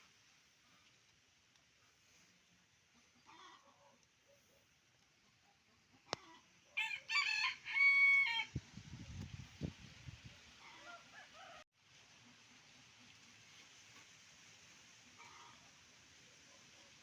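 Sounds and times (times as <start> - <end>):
rooster crowing: 6.8 - 8.5, 10.7 - 11.6.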